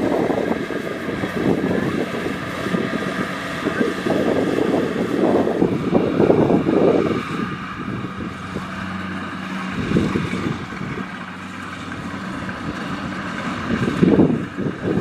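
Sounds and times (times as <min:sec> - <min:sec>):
diesel engine running: 0:00.0 - 0:15.0
wind buffeting microphone: 0:00.0 - 0:15.0.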